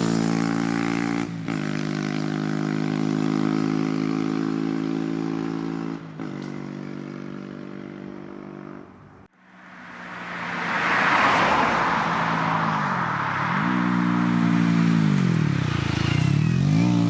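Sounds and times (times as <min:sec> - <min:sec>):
motorcycle engine running: 0:00.0 - 0:08.9, 0:13.6 - 0:17.0.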